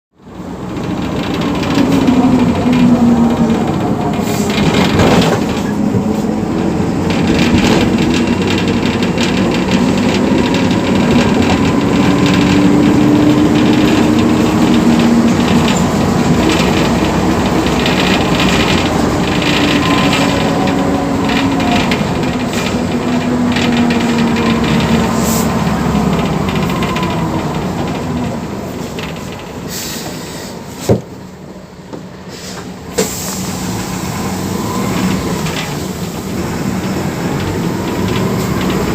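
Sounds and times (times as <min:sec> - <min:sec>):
diesel bus engine running: 0:00.2 - 0:38.9
constant rattle: 0:00.3 - 0:29.9, 0:35.0 - 0:38.9.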